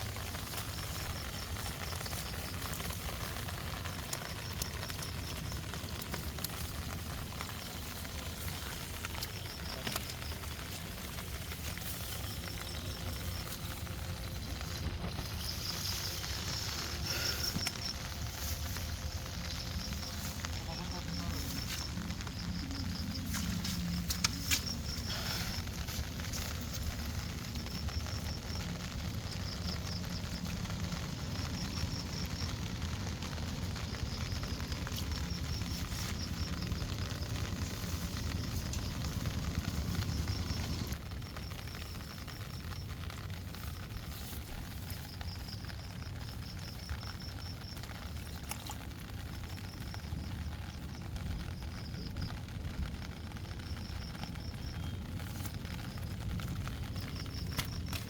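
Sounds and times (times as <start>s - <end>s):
low rumble: 0.0s - 41.4s
rain pattering: 0.0s - 58.0s.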